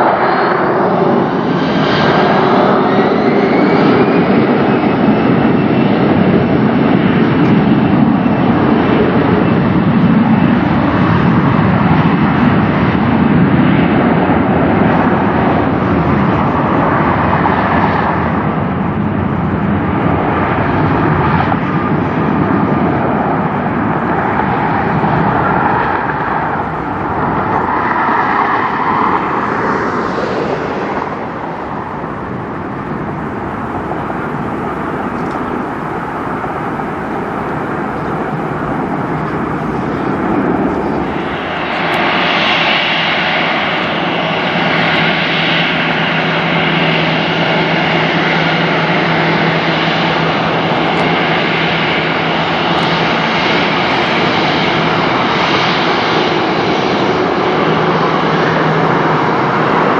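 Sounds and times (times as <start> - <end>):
jet airliner taking off: 0.0 - 59.9.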